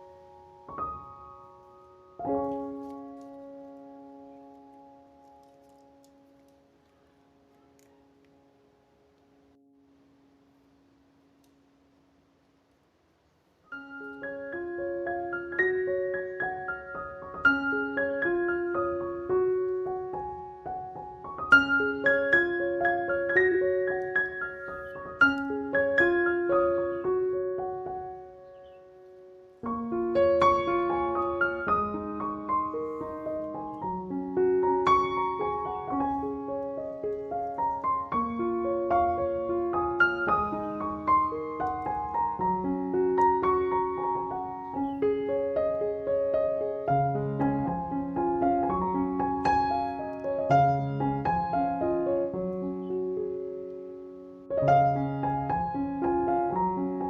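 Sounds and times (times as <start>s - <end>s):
gentle piano music: 0.0s - 11.8s, 13.6s - 57.0s.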